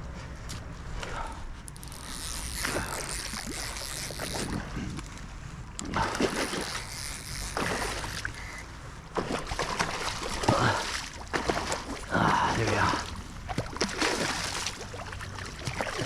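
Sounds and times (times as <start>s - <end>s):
water splashing and sloshing: 0.5s - 16.0s
wind on microphone: 1.9s - 7.3s.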